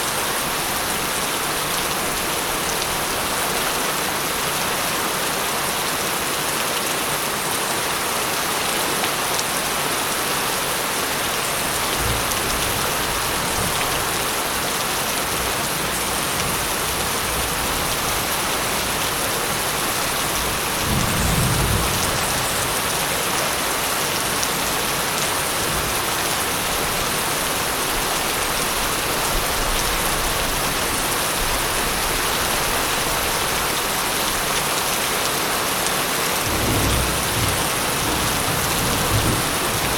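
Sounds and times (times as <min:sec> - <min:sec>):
steady rain falling: 0:00.0 - 0:39.9
low thunder rolls: 0:20.8 - 0:22.8.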